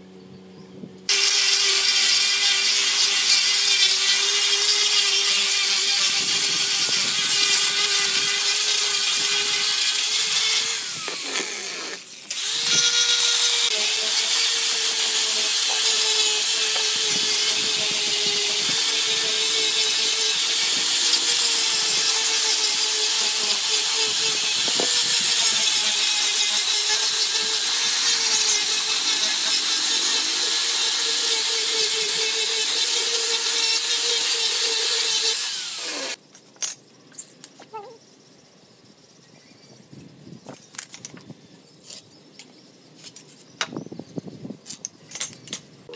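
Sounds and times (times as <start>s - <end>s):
angle grinder sanding wood: 1.1s - 36.2s
grinder winding down: 1.1s - 36.2s.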